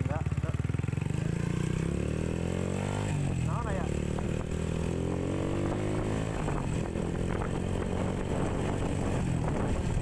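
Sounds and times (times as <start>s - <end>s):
motorcycle engine running: 0.0s - 10.0s
road and wind noise: 0.0s - 10.0s.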